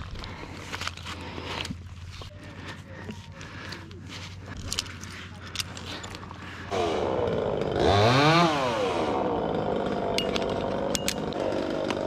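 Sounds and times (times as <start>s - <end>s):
chainsaw revving and idling: 5.7s - 12.0s.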